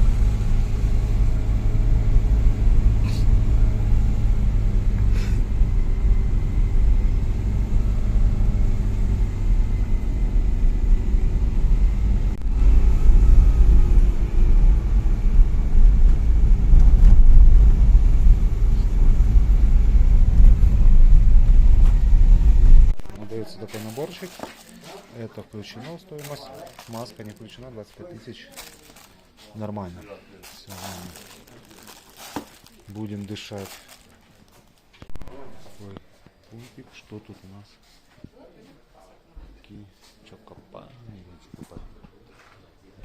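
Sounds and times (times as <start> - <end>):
vehicle engine rumble: 0.0 - 24.7, 29.9 - 36.0.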